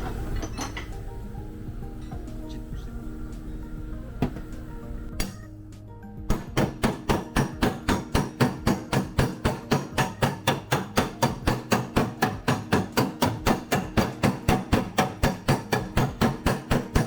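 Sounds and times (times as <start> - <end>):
hammer tapping steel panel: 6.3 - 17.0.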